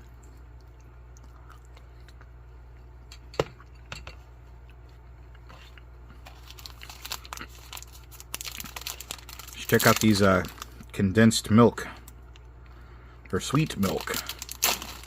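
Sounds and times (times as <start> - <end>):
low steady hum: 0.0 - 15.0
packaging crinkling: 6.2 - 10.9, 13.4 - 15.0.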